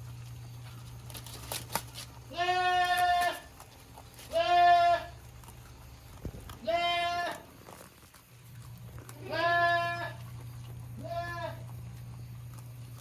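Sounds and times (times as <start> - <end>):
goat bleating: 2.3 - 3.5, 4.2 - 5.2, 6.6 - 7.6, 9.1 - 10.3, 11.0 - 11.8.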